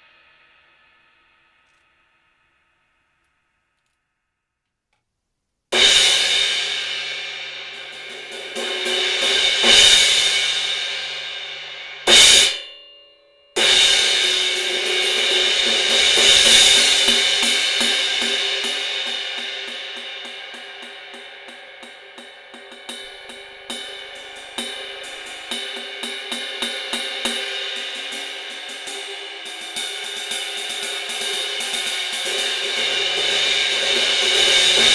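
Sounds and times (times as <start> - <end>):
cymbal strikes ringing: 5.8 - 13.0, 13.6 - 34.9.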